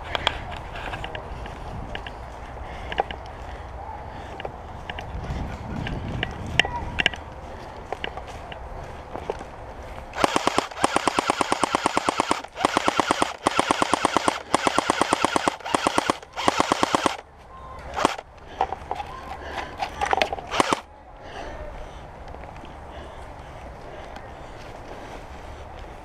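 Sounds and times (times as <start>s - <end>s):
airsoft gun firing bursts: 10.2s - 17.2s, 18.0s - 18.2s, 20.5s - 20.9s.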